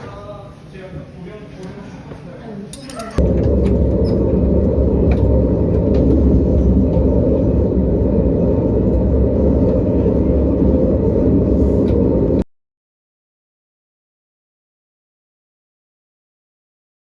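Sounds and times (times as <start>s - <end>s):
loud low rumble: 3.2s - 12.5s.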